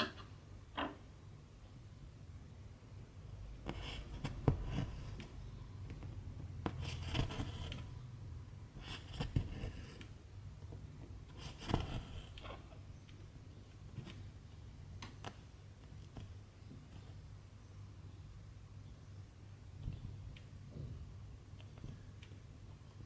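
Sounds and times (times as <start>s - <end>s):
thread being drawn through fabric: 3.6s - 5.4s, 6.6s - 8.0s, 8.8s - 10.1s, 11.3s - 12.4s
needle punching through fabric: 3.6s - 6.0s, 6.6s - 8.0s, 11.3s - 12.4s.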